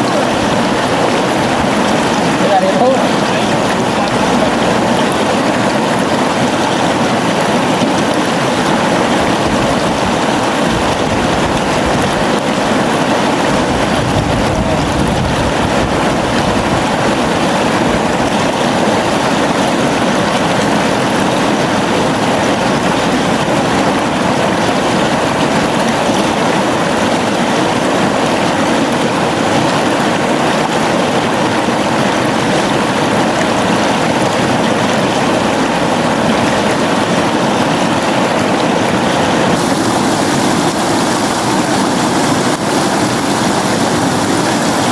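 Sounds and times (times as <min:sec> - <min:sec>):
gently flowing river: 0:00.0 - 0:44.9.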